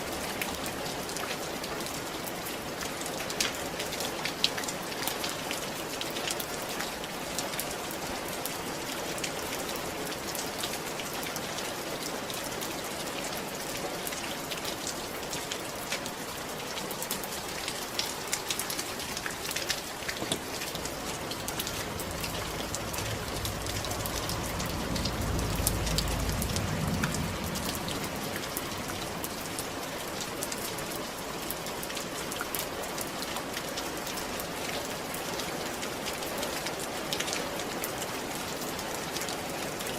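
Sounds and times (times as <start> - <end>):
rain on a roof: 0.0 - 39.9
low rumble: 20.6 - 30.0.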